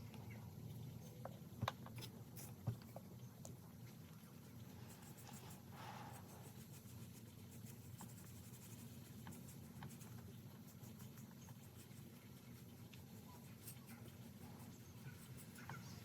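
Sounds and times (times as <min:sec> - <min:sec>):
low steady hum: 0:00.0 - 0:16.0
light scratching: 0:04.5 - 0:16.0.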